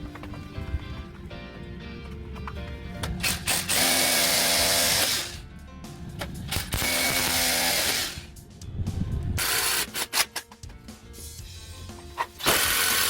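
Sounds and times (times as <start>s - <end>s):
background music: 0.0s - 13.0s
power tool running: 3.2s - 5.4s, 6.5s - 8.3s, 9.4s - 10.3s, 12.4s - 13.0s.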